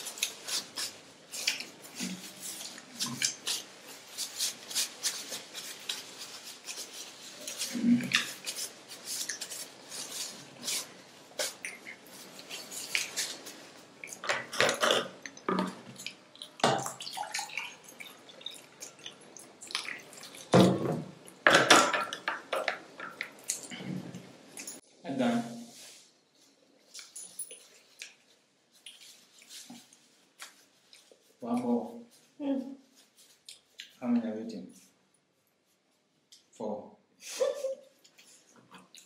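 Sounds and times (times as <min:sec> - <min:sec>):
person chewing food: 0:00.0 - 0:20.5.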